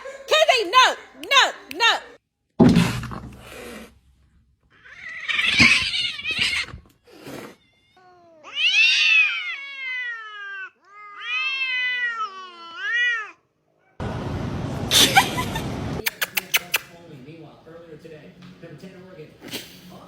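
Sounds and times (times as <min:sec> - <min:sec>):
cat yowling: 0:04.7 - 0:06.8, 0:07.5 - 0:13.4.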